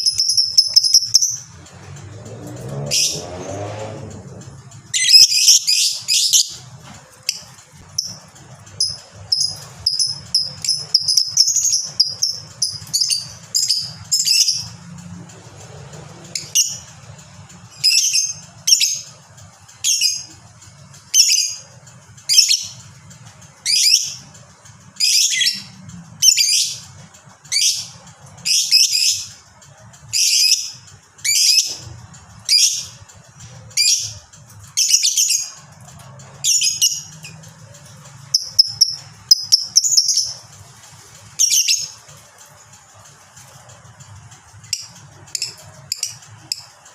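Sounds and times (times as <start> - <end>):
sharp high bird calls: 0.0 - 1.5
lovebird chattering song: 0.0 - 3.4, 4.9 - 15.0, 16.2 - 42.2, 44.5 - 46.9.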